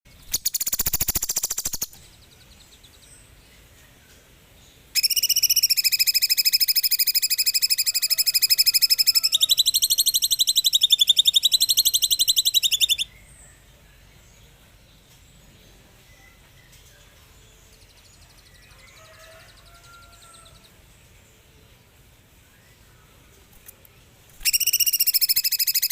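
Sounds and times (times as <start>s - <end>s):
faint bird chirps: 0.1s - 4.2s, 4.9s - 20.7s, 22.4s - 25.9s
bird rattling burst: 0.3s - 1.9s
songbird rapid high trill: 0.3s - 2.0s, 5.0s - 13.1s, 24.4s - 25.9s.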